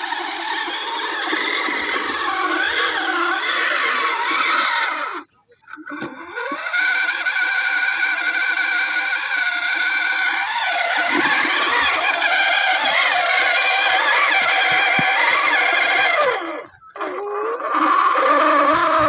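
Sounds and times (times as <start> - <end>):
tractor diesel engine running: 10.1 - 17.1.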